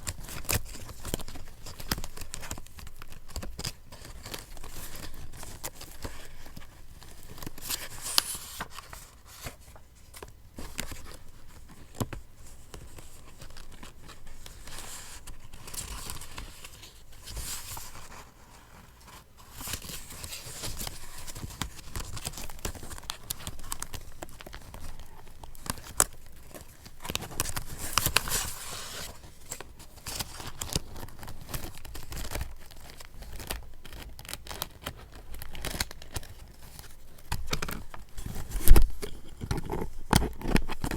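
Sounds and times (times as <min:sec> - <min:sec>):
paper rustling and tearing: 0:13.3 - 0:40.9.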